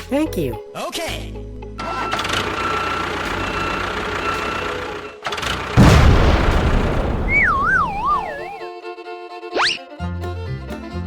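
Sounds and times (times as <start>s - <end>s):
engine-like rumble: 1.5s - 8.5s
loud low boom: 5.8s - 8.5s
wailing siren: 7.2s - 8.6s.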